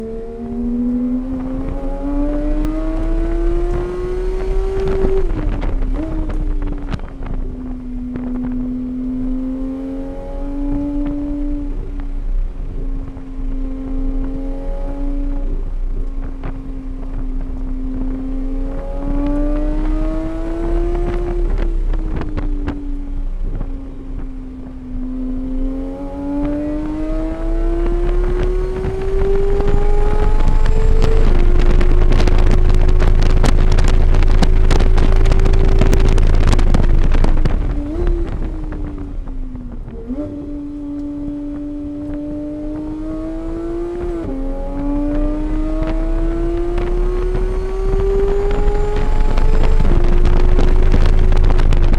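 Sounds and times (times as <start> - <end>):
race car engine revving: 0.0 - 51.9
loud wind rush: 25.5 - 51.9.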